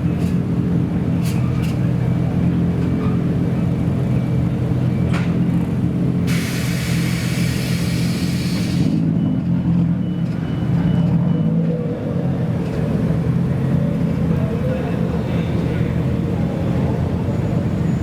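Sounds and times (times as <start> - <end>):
car engine idling: 0.0 - 8.8
hiss: 6.3 - 9.0.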